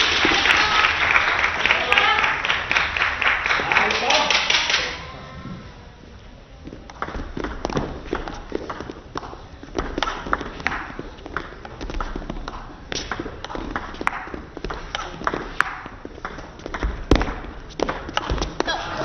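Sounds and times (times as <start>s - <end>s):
low hall noise: 0.0s - 19.0s
table tennis ball clicking: 6.9s - 18.3s.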